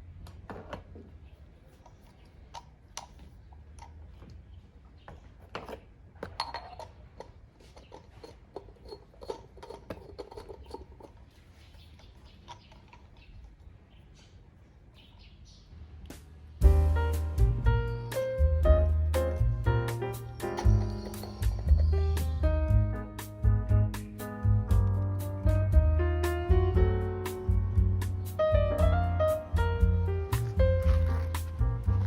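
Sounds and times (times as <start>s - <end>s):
small objects clicking and tapping: 5.1s - 13.5s
piano music: 16.6s - 32.0s.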